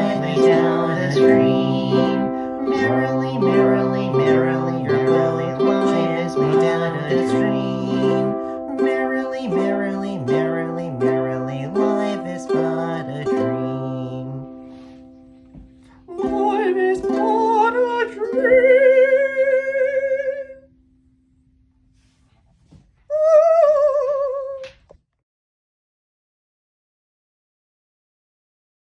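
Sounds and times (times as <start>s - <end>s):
ukulele strumming: 0.0s - 20.5s.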